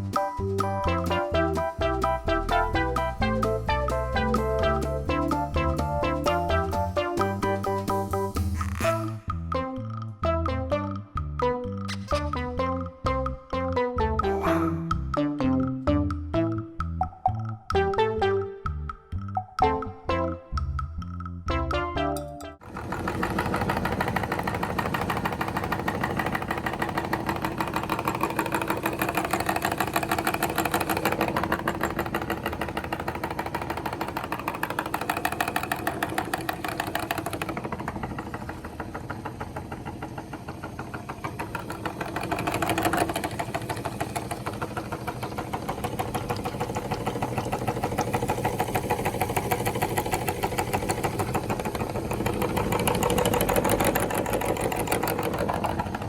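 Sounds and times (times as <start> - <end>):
meat grinder motor running: 22.6 - 56.0.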